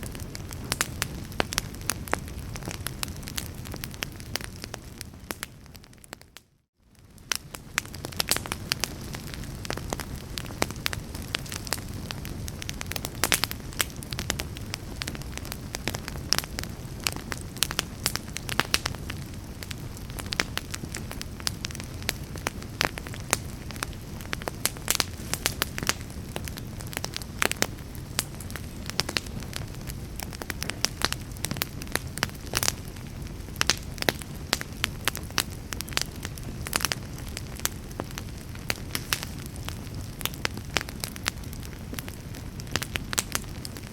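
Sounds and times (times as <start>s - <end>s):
fire crackling and popping: 0.0s - 43.9s
fire rumbling: 0.0s - 43.9s.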